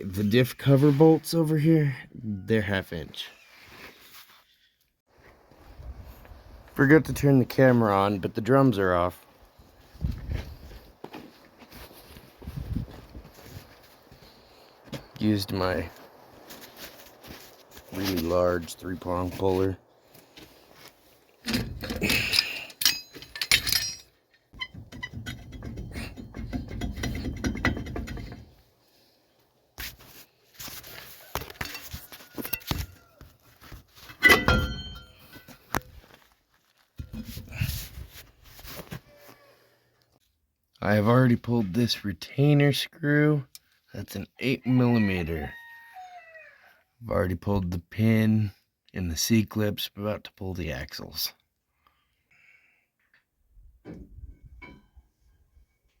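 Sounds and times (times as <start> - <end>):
metal tools clinking: 21.4 - 28.3, 34.2 - 35.6
ringing metal clang: 34.2 - 35.4.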